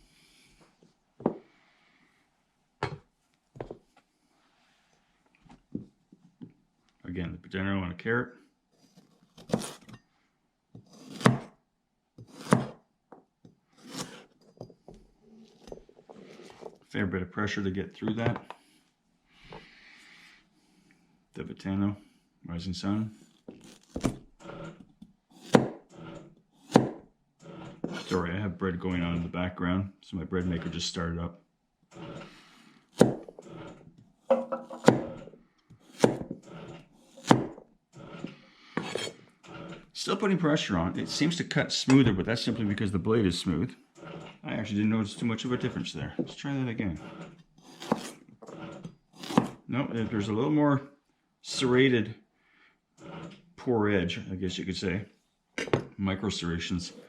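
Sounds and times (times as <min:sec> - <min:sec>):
knife rasping through carrot: 0:08.8 - 0:09.9, 0:10.8 - 0:11.4, 0:12.2 - 0:12.7, 0:13.8 - 0:14.4, 0:23.2 - 0:28.2, 0:31.9 - 0:33.9, 0:34.7 - 0:40.0, 0:44.0 - 0:49.6, 0:53.0 - 0:53.4
knife knocking on board: 0:34.3 - 0:35.1
knife crunching through carrot: 0:47.0 - 0:49.6.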